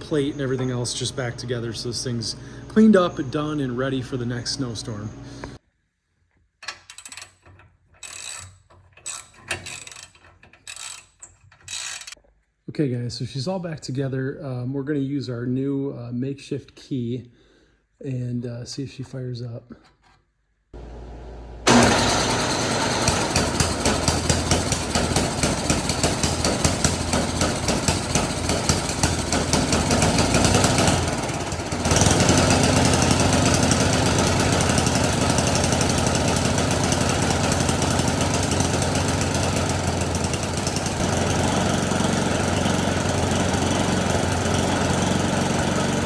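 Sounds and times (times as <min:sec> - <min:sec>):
small gasoline engine running: 0:00.0 - 0:05.6, 0:20.8 - 0:46.0.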